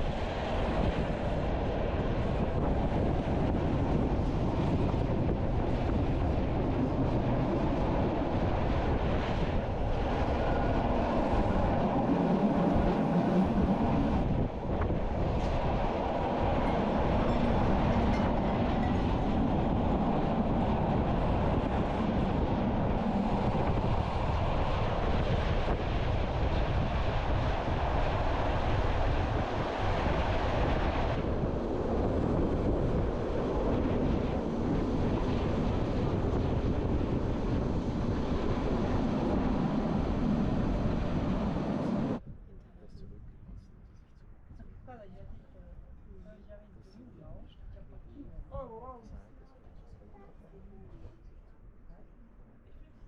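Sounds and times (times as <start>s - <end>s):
train wheels rumbling on rails: 2.2s - 28.2s.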